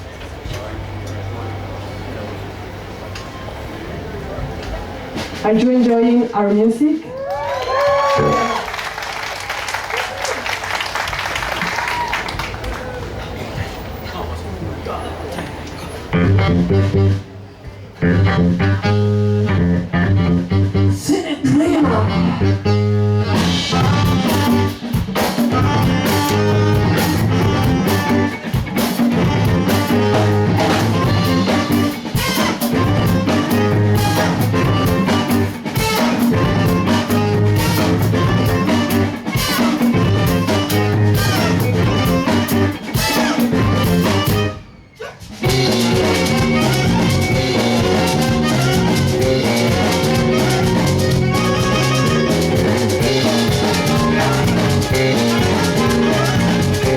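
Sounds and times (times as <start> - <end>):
live band playing: 1.5 - 7.1, 7.7 - 9.1, 15.9 - 56.9
guitar: 7.9 - 8.6, 15.7 - 56.9
bass line: 8.0 - 8.6, 16.1 - 44.6, 45.4 - 56.9
drum kit: 22.1 - 44.6, 45.2 - 56.9.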